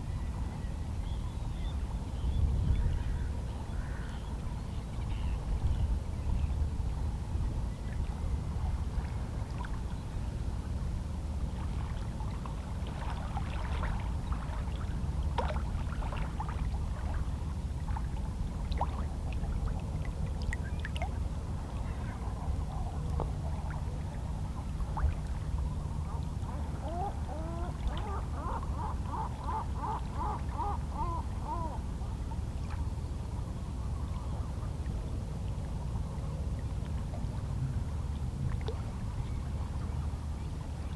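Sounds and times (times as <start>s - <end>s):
distant seabirds calling: 26.8s - 31.8s.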